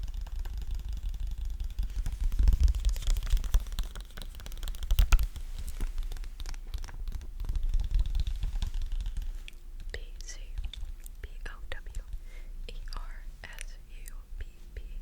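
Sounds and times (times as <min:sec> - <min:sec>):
sticky peeling and crackling: 0:00.0 - 0:11.2.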